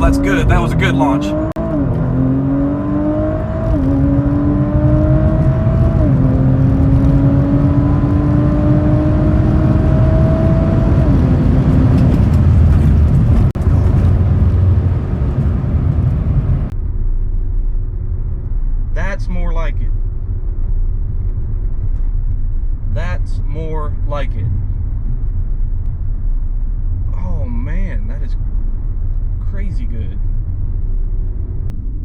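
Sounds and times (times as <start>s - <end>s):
car engine accelerating hard: 0.0s - 16.8s.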